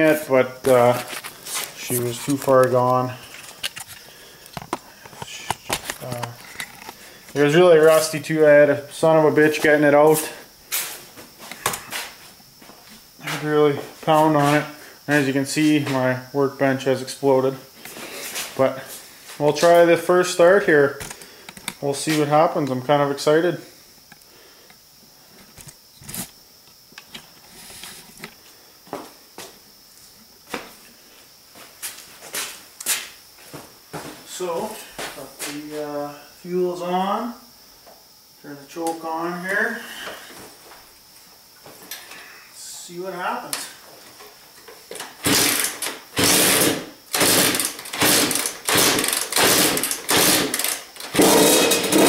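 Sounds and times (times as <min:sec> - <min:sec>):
rustling of handled things: 0:00.0 - 0:08.2
motorcycle engine kickstarted: 0:45.2 - 0:52.0
two-stroke engine running: 0:45.2 - 0:52.0.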